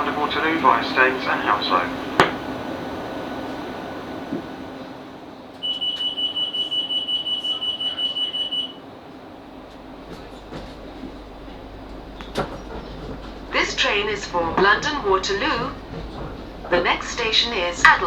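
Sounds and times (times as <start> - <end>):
low train rumble: 0.0 - 18.0
train hum: 0.0 - 18.0
rapid high-pitched warning beeps: 5.6 - 8.8.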